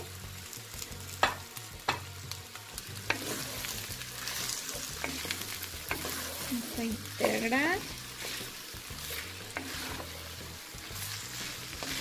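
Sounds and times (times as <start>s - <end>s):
vegetables sizzling in oil: 0.0s - 12.0s
wooden spoon stirring: 3.1s - 12.0s.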